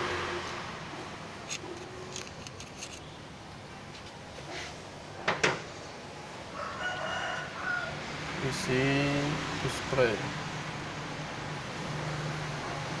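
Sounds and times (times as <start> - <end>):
hand tool scraping mesh: 1.5 - 3.0.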